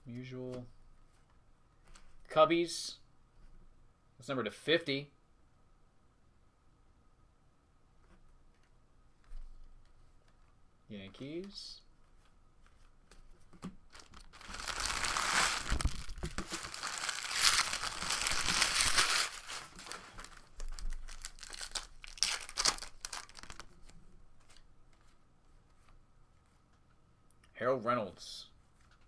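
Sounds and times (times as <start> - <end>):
foil wrapper tearing and crinkling: 13.9 - 23.8
wrapper clicks: 13.9 - 23.8.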